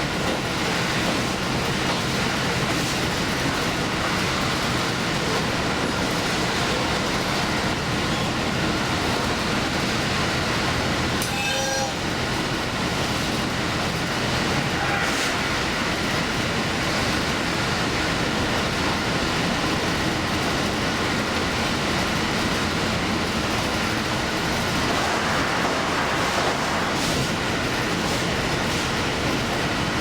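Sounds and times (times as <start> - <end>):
train running rumble: 0.0 - 30.0.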